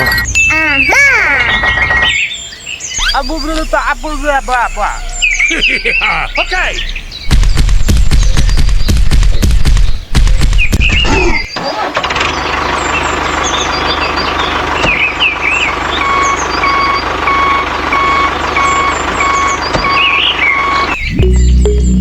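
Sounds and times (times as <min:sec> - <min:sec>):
reversing alarm beeping: 0:00.0 - 0:00.6, 0:01.5 - 0:07.2, 0:14.9 - 0:22.0
birds chirping: 0:00.0 - 0:22.0
vehicle motor running: 0:00.0 - 0:22.0.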